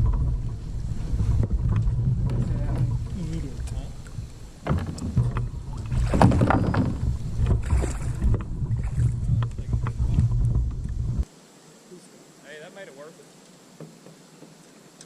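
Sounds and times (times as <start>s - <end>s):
rushing river water: 0.0s - 10.1s
water splashes: 0.0s - 11.1s
wind on microphone: 0.0s - 11.3s.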